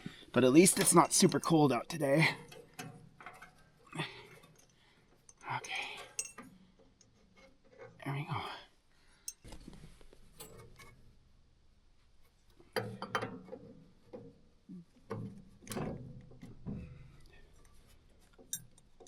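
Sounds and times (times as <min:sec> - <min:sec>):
metallic clinks and knocks: 0:02.3 - 0:08.0, 0:09.2 - 0:09.6, 0:12.7 - 0:14.4, 0:15.1 - 0:19.0.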